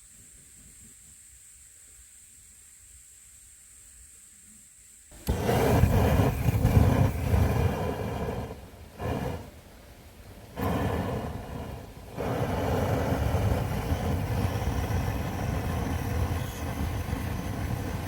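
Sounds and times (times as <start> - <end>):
steady low rumbling: 5.2 - 18.0.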